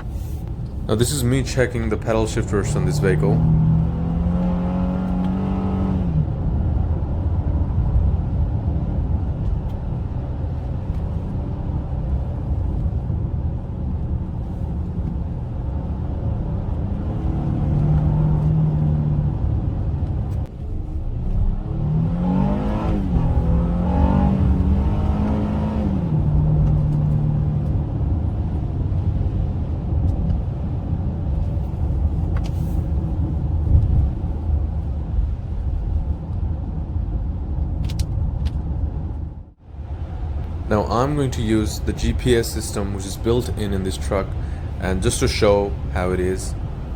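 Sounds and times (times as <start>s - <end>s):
car engine accelerating: 0.0s - 36.1s, 36.7s - 46.9s
road rumble: 0.0s - 46.9s.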